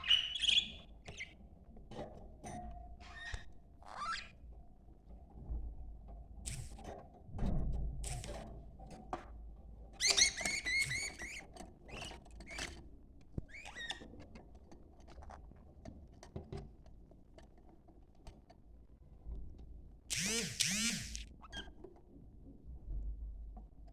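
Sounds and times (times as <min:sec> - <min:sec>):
small clicks: 0:06.5 - 0:06.8, 0:08.0 - 0:08.4, 0:20.1 - 0:21.3.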